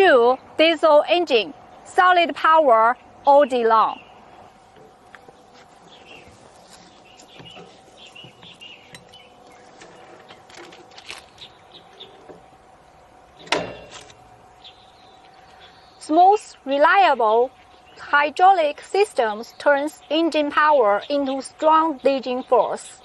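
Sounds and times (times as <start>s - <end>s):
faint steady hum: 0.0s - 23.0s
bird chirps: 5.2s - 10.5s, 11.2s - 12.4s, 14.6s - 16.1s.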